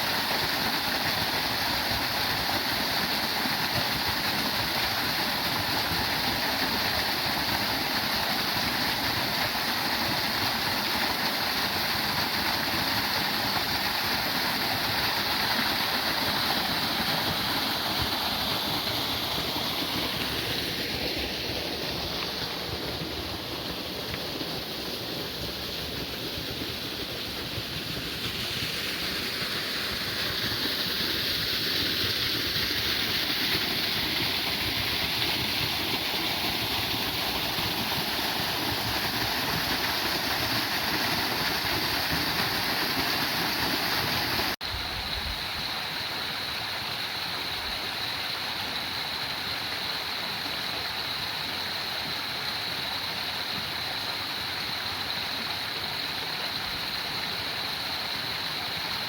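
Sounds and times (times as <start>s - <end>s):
waterfall rushing: 0.0s - 44.6s.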